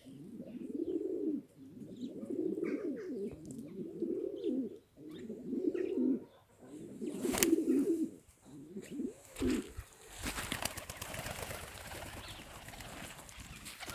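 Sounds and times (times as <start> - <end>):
pigeons cooing: 0.0 - 13.9
crackling rustling noise: 9.2 - 13.9.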